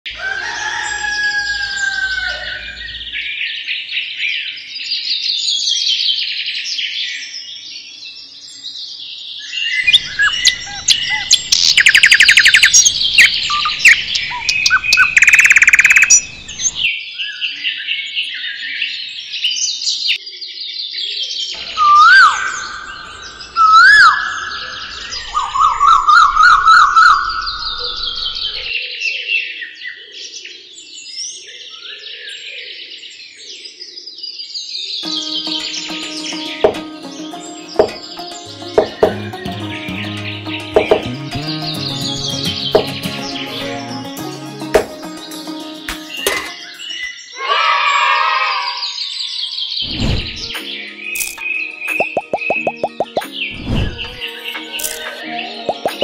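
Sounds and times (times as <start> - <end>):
birds chirping and singing: 0.1 - 56.0
loud rapid bird trills: 9.8 - 16.8
swooping whistled bird calls: 9.8 - 16.8.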